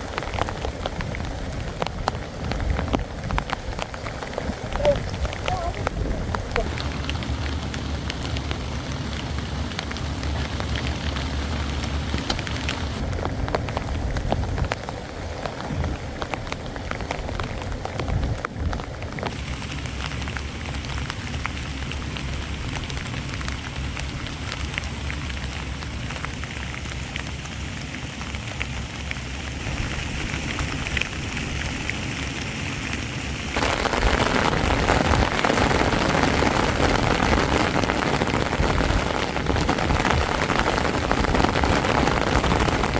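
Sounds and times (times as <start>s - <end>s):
heavy rain on a tent: 0.0s - 42.9s.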